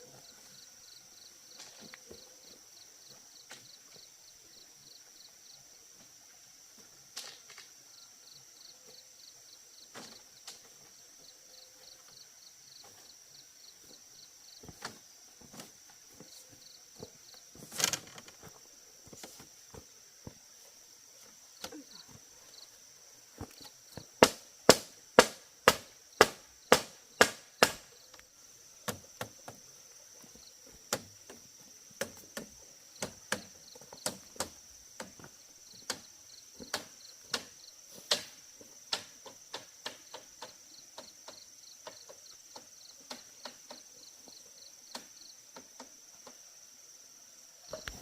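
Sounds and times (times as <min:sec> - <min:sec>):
high insect chirring: 0:07.2 - 0:48.0
tool striking bamboo: 0:24.2 - 0:27.9.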